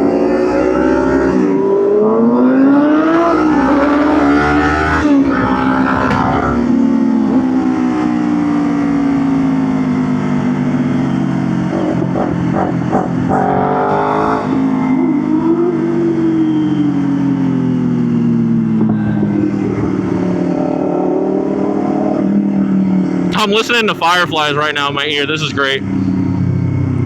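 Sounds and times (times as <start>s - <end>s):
motorcycle engine revving: 0.8s - 7.8s.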